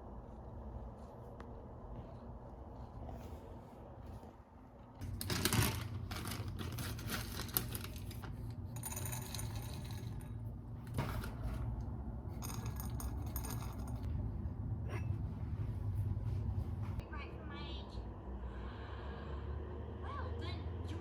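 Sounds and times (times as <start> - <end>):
small hard objects clinking: 5.0 - 10.4, 12.4 - 14.1
low hum: 7.4 - 21.0.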